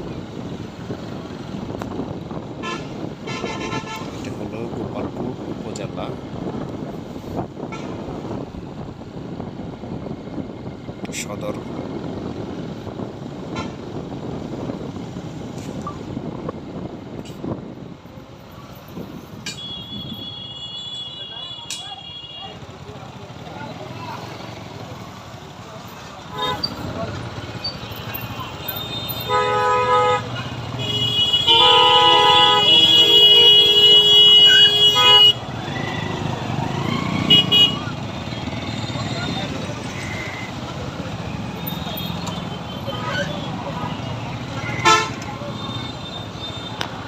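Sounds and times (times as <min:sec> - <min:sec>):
road and wind noise: 0:00.0 - 0:47.0
traffic and engine rumble: 0:00.0 - 0:47.0
vehicle horn honking: 0:02.6 - 0:04.1, 0:19.5 - 0:22.6, 0:26.3 - 0:26.8, 0:28.7 - 0:35.4, 0:37.2 - 0:39.0, 0:41.9 - 0:46.8.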